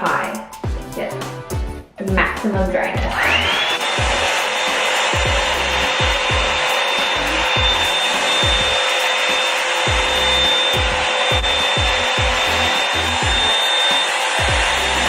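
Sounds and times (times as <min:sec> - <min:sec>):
hot-air brush dryer running: 0:03.0 - 0:15.0.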